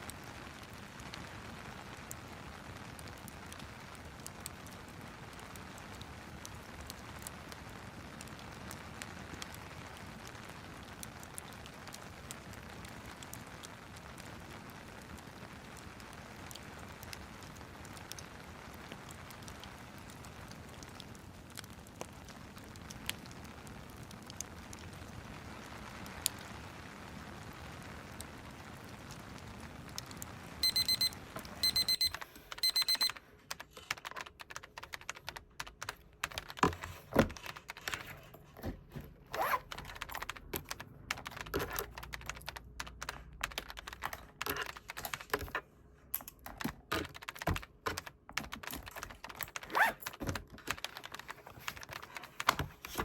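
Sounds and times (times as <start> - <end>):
rain: 0.0 - 31.6
fireplace crackling: 0.1 - 46.9
electronic timer alarm beeping: 30.6 - 33.2
typing on a keyboard: 30.6 - 38.7, 39.3 - 53.0.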